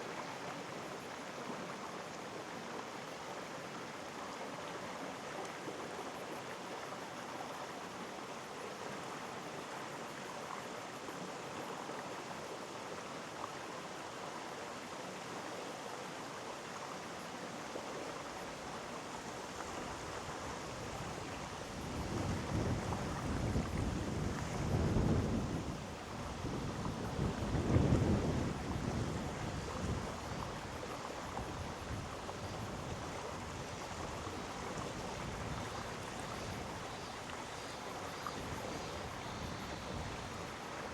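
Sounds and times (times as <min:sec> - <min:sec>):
mountain stream rushing: 0:09.2 - 0:40.9.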